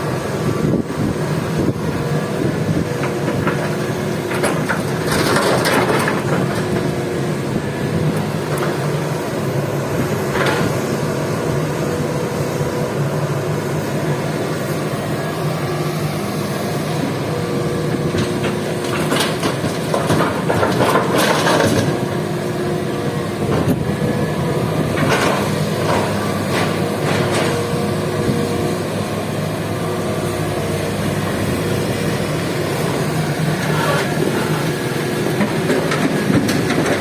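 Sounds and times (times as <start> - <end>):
heavy diesel machinery running: 0.0 - 37.0.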